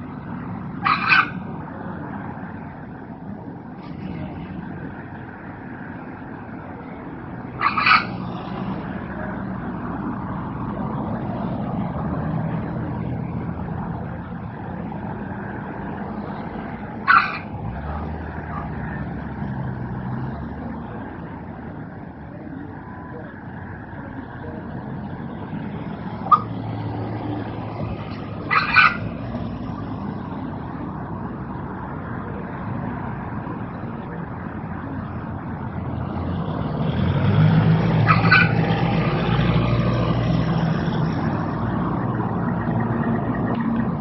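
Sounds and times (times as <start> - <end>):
bird giving harsh calls: 0.8 - 1.4, 7.6 - 8.4, 17.0 - 17.5, 28.5 - 29.1, 38.0 - 38.6.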